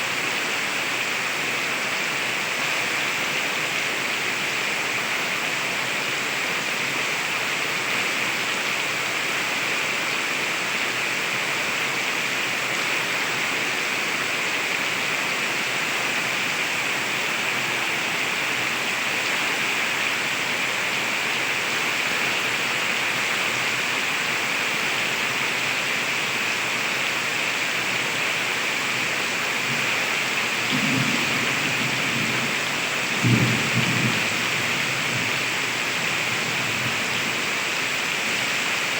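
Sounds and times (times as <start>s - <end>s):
heavy rain: 0.0s - 38.9s
thunder rumbling: 30.6s - 36.2s.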